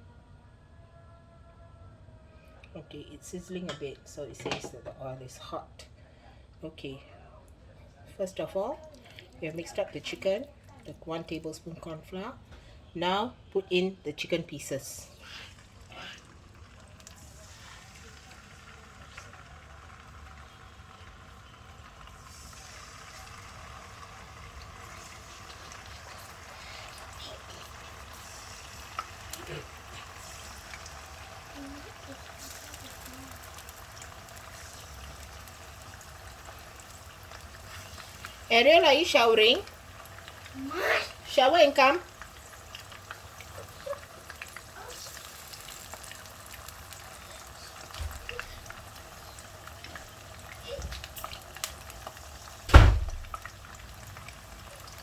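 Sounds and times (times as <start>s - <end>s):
chicken frying in oil: 14.8s - 55.0s.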